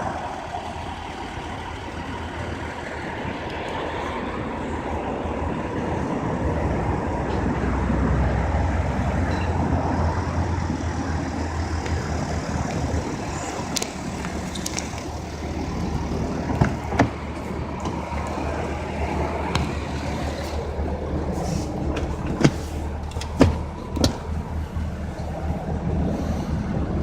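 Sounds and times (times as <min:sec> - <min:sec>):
car engine rumbling: 0:00.0 - 0:27.0.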